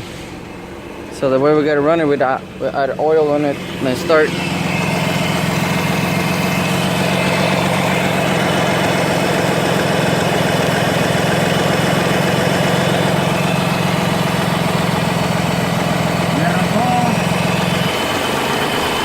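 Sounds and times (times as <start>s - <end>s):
rotary engine idling roughly: 0.5s - 19.0s.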